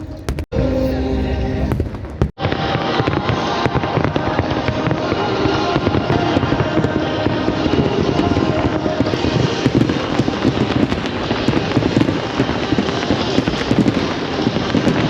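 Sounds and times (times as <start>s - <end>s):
music playing: 0.0s - 13.0s
fireworks bursting and crackling: 0.0s - 15.0s.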